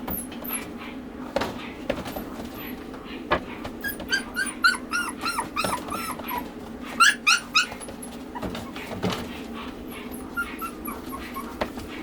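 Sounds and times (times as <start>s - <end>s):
dog whimpering: 3.8s - 8.9s, 9.8s - 12.0s.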